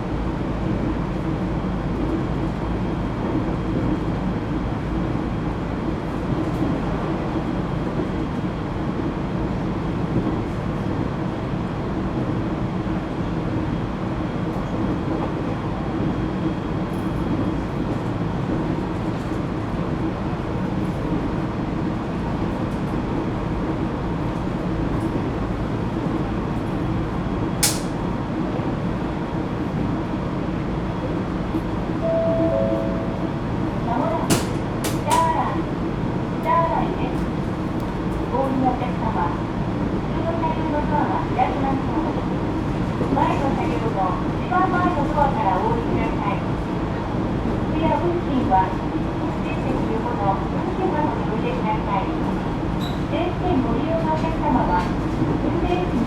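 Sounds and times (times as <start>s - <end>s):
train wheels rumbling on rail: 0.0s - 32.0s, 33.6s - 56.0s
sharp click: 27.6s - 27.9s.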